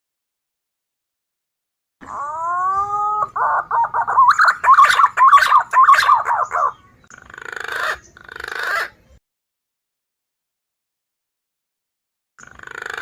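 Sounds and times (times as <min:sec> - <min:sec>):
recorded pigeon calls: 0:02.0 - 0:09.2, 0:12.4 - 0:13.0.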